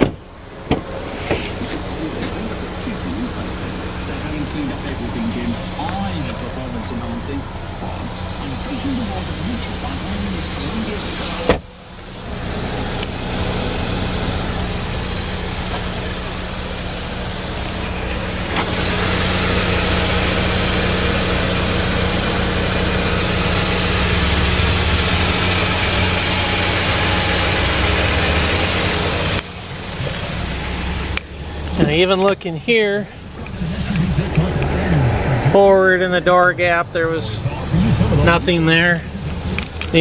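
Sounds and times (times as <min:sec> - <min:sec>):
vehicle engine running: 0:00.0 - 0:40.0.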